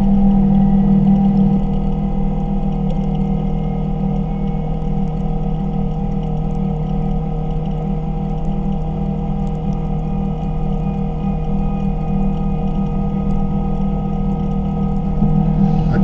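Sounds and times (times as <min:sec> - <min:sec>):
vehicle engine droning: 0:13.8 - 0:16.0.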